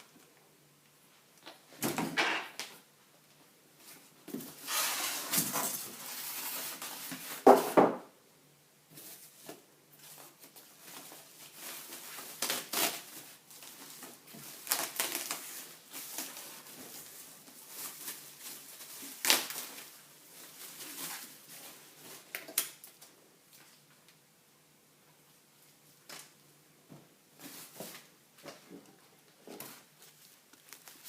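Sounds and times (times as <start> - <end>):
packaging rustling: 9.0 - 22.6, 29.7 - 31.0.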